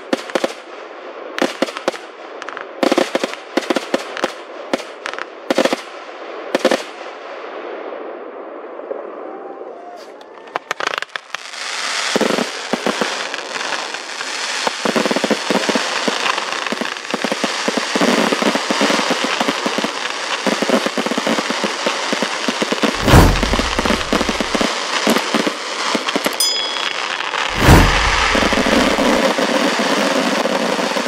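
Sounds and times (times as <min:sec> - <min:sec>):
fireworks crackling and popping: 0:10.5 - 0:31.0
fireworks launching: 0:14.6 - 0:31.0
deep firework boom: 0:22.9 - 0:24.7, 0:27.3 - 0:29.3.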